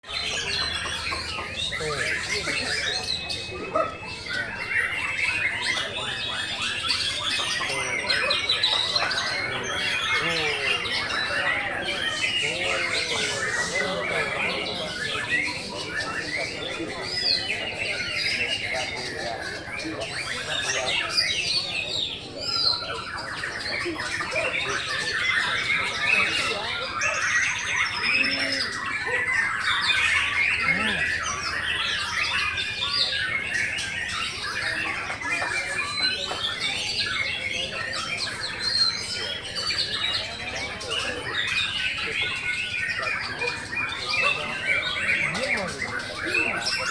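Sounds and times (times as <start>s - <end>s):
songbirds chirping and trilling: 0.0s - 46.9s
low arching bird call: 20.0s - 46.9s.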